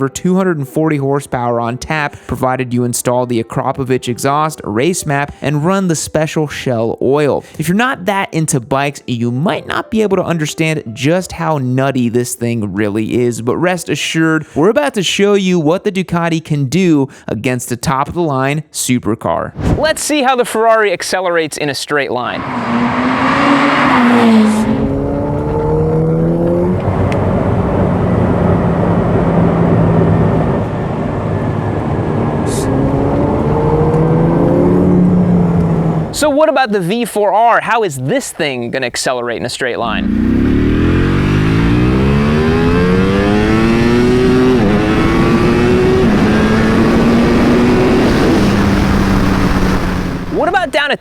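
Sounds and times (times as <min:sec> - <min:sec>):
car engine accelerating hard: 0:22.2 - 0:36.3, 0:39.8 - 0:50.8.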